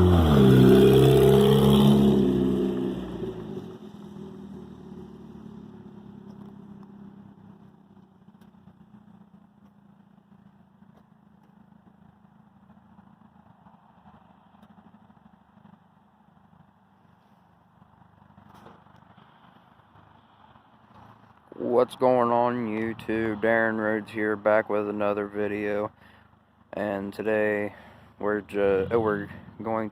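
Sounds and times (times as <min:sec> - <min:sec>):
race car engine: 0:00.0 - 0:19.7, 0:26.8 - 0:29.9.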